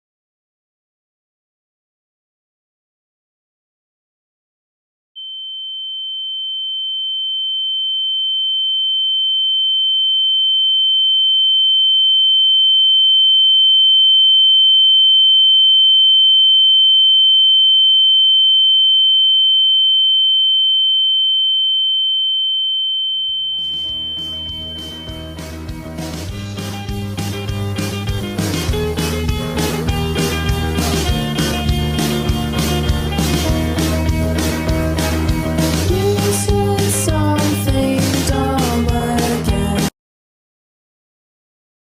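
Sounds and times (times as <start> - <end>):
high-pitched electronic sine tone: 5.2 - 25.7
music: 23.6 - 39.9.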